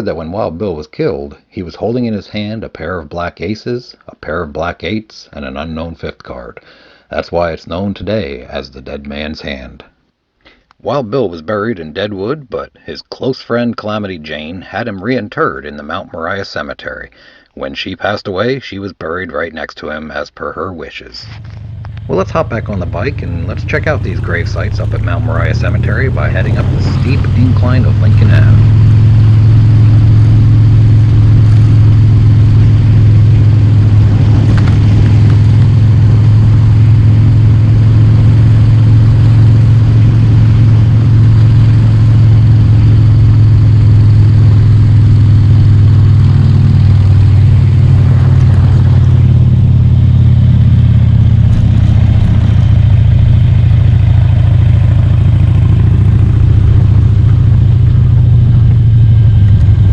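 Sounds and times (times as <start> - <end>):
motorcycle engine under load: 21.2 - 59.9.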